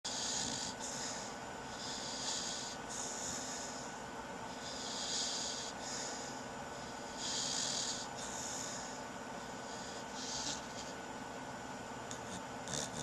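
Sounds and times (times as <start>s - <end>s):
dog snoring: 0.1s - 9.0s, 9.6s - 11.0s, 12.0s - 13.0s.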